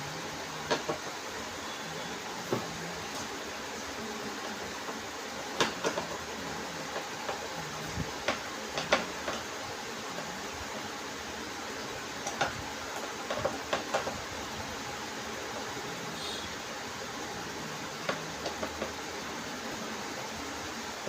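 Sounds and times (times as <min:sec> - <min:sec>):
steady hiss: 0:00.0 - 0:21.0
sharp clicks and knocks: 0:08.2 - 0:09.5.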